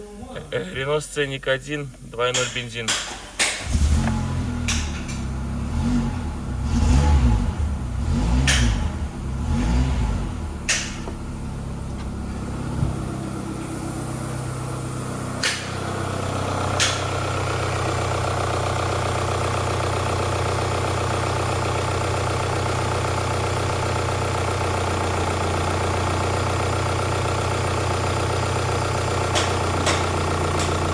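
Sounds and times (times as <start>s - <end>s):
car engine rumbling and idling: 0.0s - 30.9s
sharp engine clicks: 8.4s - 8.9s.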